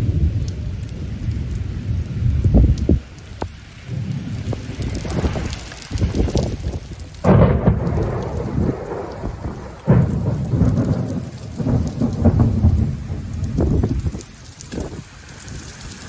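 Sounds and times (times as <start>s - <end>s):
heavy rain falling: 0.0s - 16.0s
thunder rumbling: 0.0s - 16.0s.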